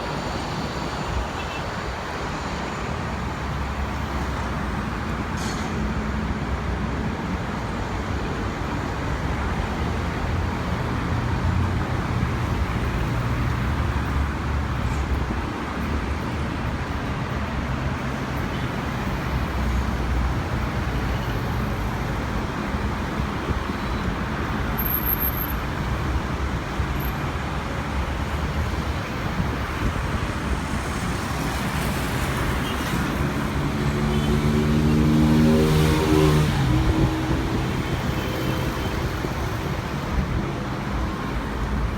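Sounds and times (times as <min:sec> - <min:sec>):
traffic roar: 0:00.0 - 0:41.9
vehicle engine accelerating: 0:33.2 - 0:37.9.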